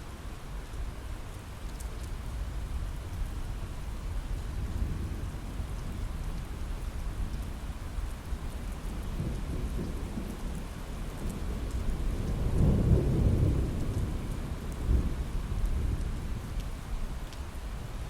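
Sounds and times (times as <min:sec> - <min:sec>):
rain on a window: 0:00.0 - 0:18.0
thunder rumbling: 0:09.0 - 0:16.6.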